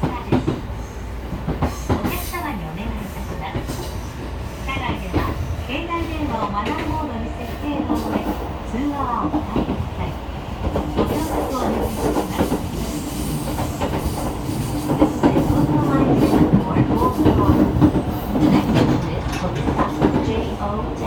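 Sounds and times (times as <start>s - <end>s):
train rumble with motor hum: 0.0s - 21.0s
wheels clicking over rail joints: 17.2s - 20.4s.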